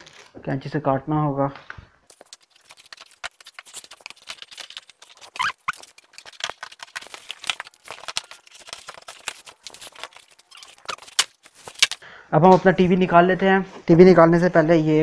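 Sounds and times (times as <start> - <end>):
scissors cutting packing tape: 2.1 - 12.0
squeaky chirps: 5.2 - 5.9, 10.4 - 11.2.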